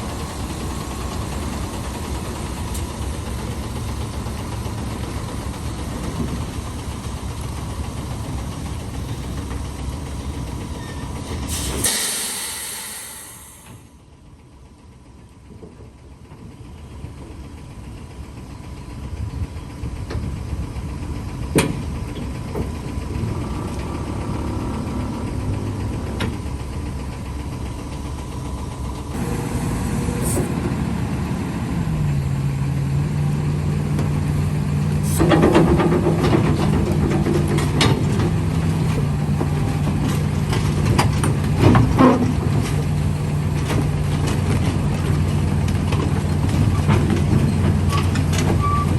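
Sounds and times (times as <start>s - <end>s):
heavy machine engine running: 0.0s - 48.9s
metallic clanks and knocks: 35.1s - 43.0s.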